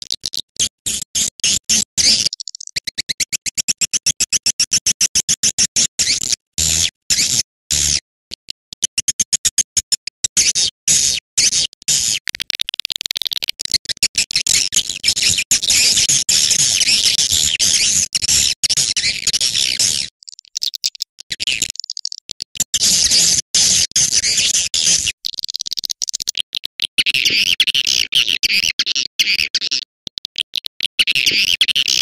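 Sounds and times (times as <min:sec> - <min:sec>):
high-pitched bird twittering: 0:02.0 - 0:03.4, 0:21.6 - 0:22.2.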